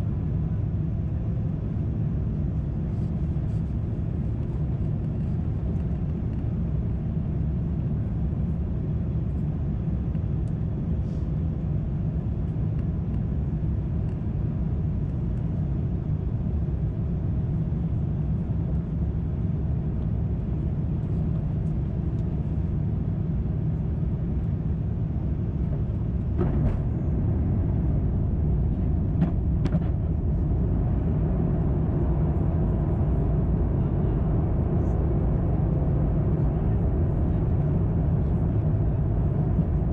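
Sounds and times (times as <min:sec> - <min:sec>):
aircraft cabin roar: 0:00.0 - 0:39.9.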